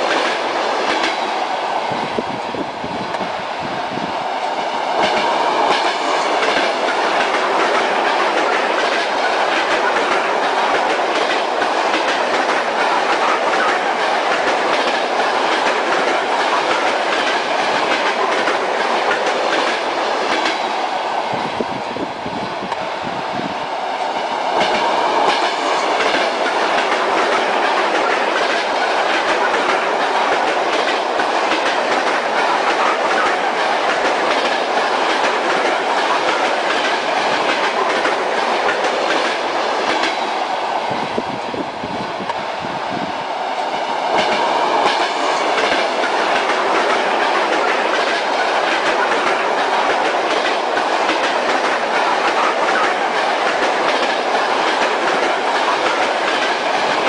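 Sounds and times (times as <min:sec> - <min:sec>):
rushing rumble of moving train: 0:00.0 - 0:57.0
train wheels clattering over rail joints: 0:04.9 - 0:20.7, 0:24.4 - 0:40.4, 0:44.0 - 0:57.0.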